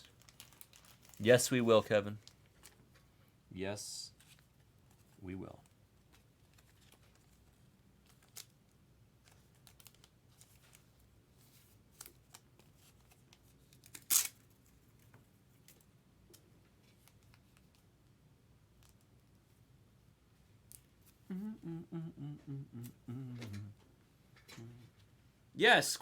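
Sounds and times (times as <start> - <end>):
trading cards and packaging rustling: 0.0 - 3.1, 4.1 - 8.6, 9.2 - 17.9.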